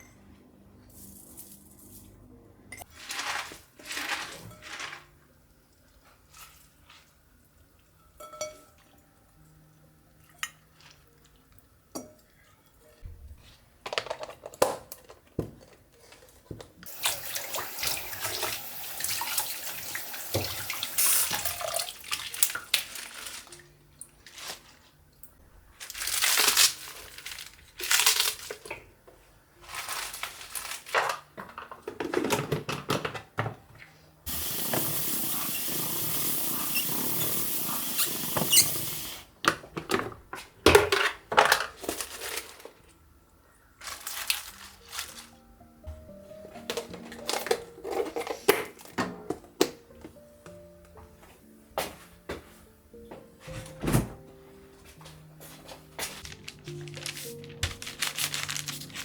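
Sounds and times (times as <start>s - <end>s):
tap water running into sink: 16.9s - 22.6s, 34.3s - 39.2s.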